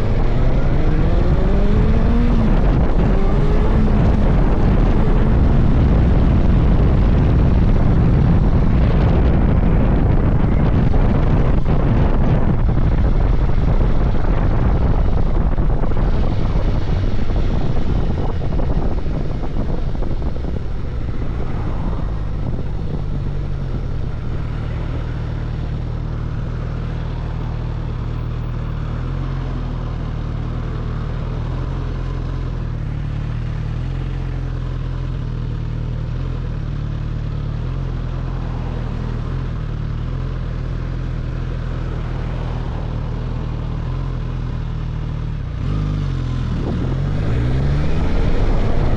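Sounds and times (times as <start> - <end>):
wind rush on microphone: 0.0 - 35.3, 38.0 - 48.9
motorcycle engine: 0.0 - 48.9.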